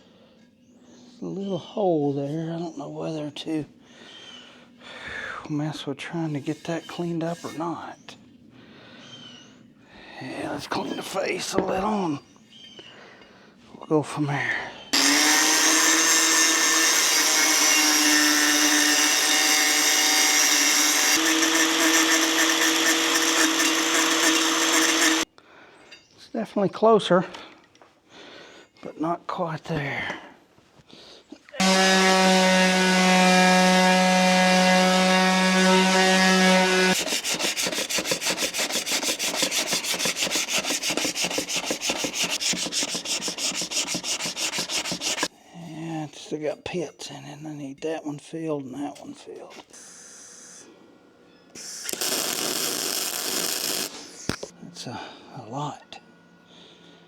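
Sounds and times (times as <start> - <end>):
power grinder whining: 14.9 - 25.3, 31.6 - 45.3, 51.6 - 54.5
abrasive rubbing strokes on metal: 31.6 - 45.3, 51.6 - 54.3.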